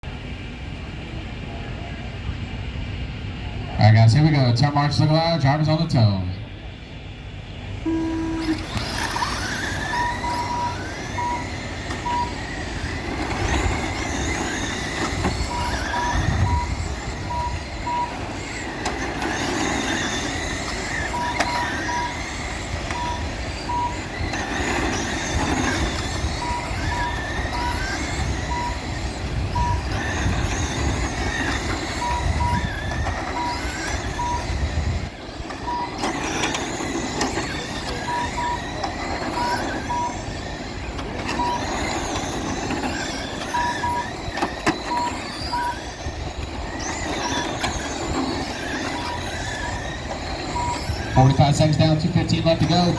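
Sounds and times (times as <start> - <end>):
brief tone: 7.8 - 12.6, 13.2 - 18.6, 19.8 - 24.2, 24.8 - 34.8, 35.6 - 52.9
short beeps: 7.8 - 18.6, 19.3 - 24.2, 25.4 - 34.8, 35.5 - 40.5, 41.2 - 46.2, 47.1 - 52.9
electric rc motors whining: 7.8 - 52.9.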